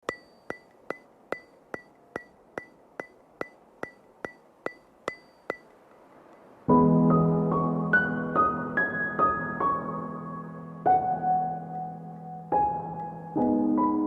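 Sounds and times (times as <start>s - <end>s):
sharp ringing ticks: 0.0s - 6.6s
soft piano music: 6.2s - 14.0s.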